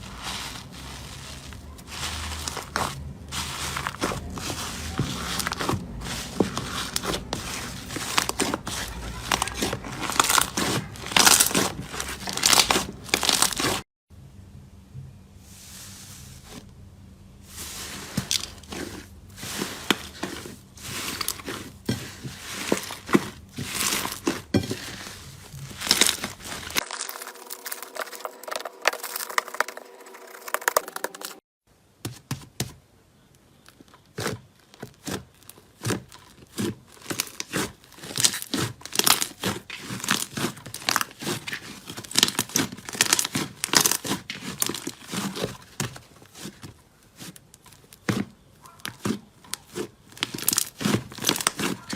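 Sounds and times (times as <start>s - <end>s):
slime crackling and popping: 0.0s - 13.8s, 19.6s - 29.7s, 34.2s - 48.2s, 48.8s - 51.9s.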